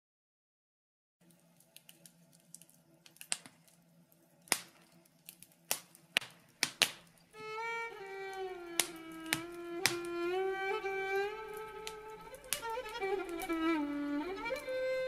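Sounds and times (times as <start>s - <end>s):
faint low hum: 1.2s - 15.0s
fire crackling and popping: 1.2s - 15.0s
violin playing slow melody: 7.4s - 15.0s.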